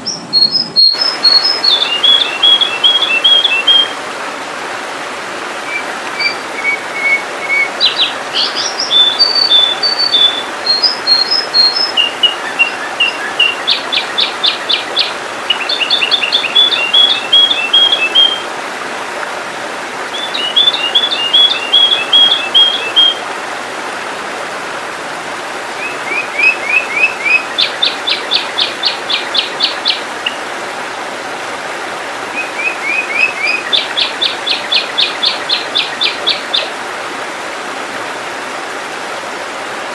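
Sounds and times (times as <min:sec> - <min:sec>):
bird calling with whistles and trills: 0:00.0 - 0:04.0, 0:05.7 - 0:18.4, 0:20.1 - 0:23.2, 0:25.8 - 0:30.4, 0:32.4 - 0:36.7.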